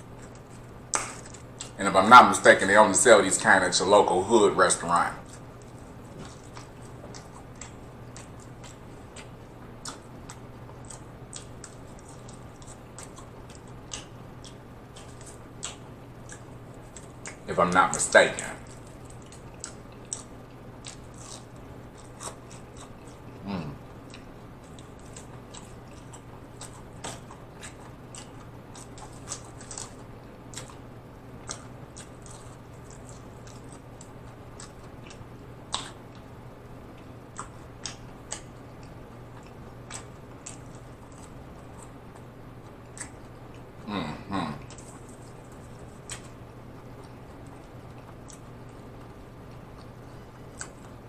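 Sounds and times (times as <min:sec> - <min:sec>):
wet mouth chewing: 0:05.2 - 0:17.5, 0:18.6 - 0:36.3, 0:44.5 - 0:51.0
voiced murmur: 0:23.4 - 0:23.8, 0:43.8 - 0:44.7.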